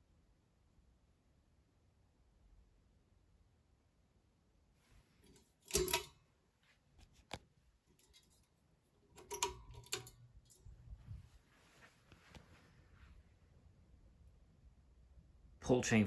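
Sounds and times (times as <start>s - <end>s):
pull-chain switch clicking: 5.7s - 6.1s, 9.2s - 10.2s.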